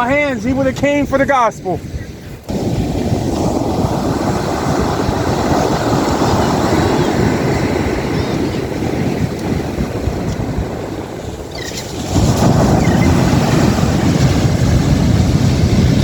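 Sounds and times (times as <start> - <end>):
wind buffeting microphone: 0.0 - 16.0
faint bird calls: 11.5 - 12.0.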